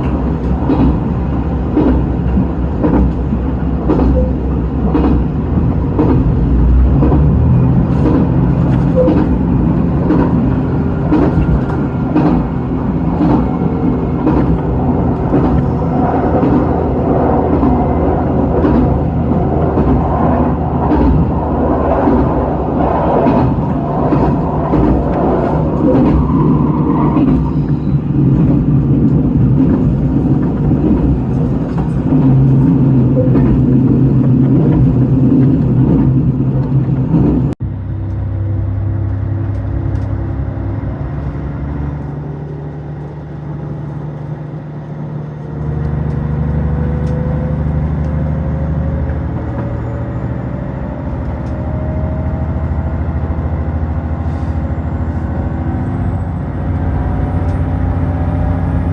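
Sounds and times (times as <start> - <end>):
wheels clicking on track: 0.0 - 44.4
diesel railcar engine drone: 0.0 - 58.9.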